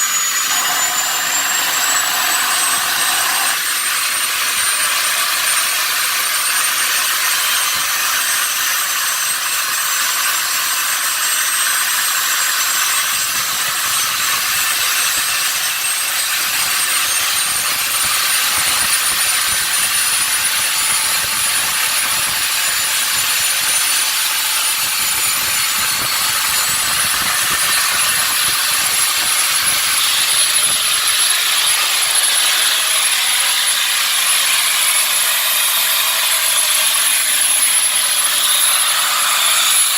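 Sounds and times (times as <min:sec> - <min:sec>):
gas turbine engine rushing: 0:00.0 - 0:03.6
high-pitched turbine whine: 0:00.0 - 0:04.7, 0:12.6 - 0:31.9.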